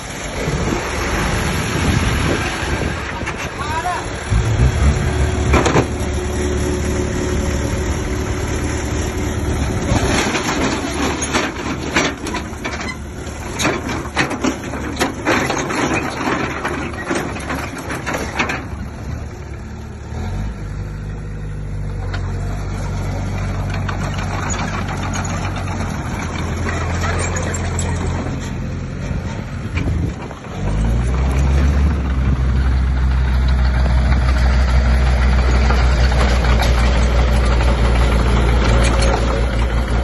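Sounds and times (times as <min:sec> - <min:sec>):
heavy machinery engine: 0:00.0 - 0:40.0
knocks and scraping clatter: 0:02.3 - 0:07.1, 0:09.6 - 0:19.0, 0:23.2 - 0:40.0.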